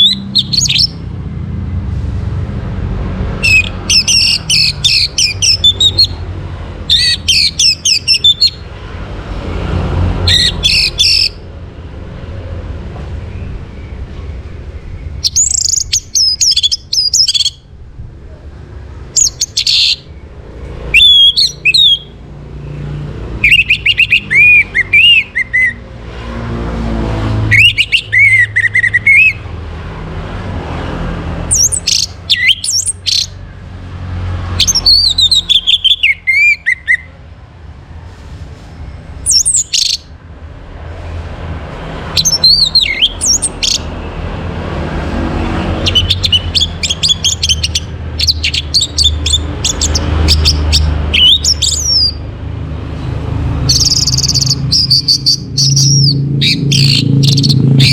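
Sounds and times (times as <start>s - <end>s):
bird whistling song: 0.0s - 1.0s, 3.4s - 6.2s, 6.9s - 8.6s, 10.2s - 11.4s, 14.9s - 17.6s, 19.2s - 20.1s, 20.8s - 22.2s, 23.4s - 25.8s, 27.5s - 29.4s, 31.5s - 33.4s, 34.6s - 37.2s, 39.2s - 40.1s, 42.2s - 43.9s, 45.8s - 52.2s, 53.7s - 57.9s.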